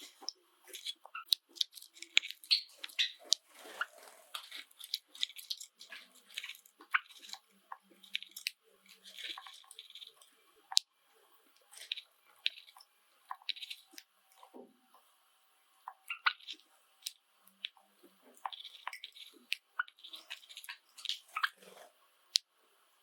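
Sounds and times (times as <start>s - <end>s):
sparrows chirping: 0.0s - 7.2s, 16.0s - 16.6s, 18.4s - 21.8s.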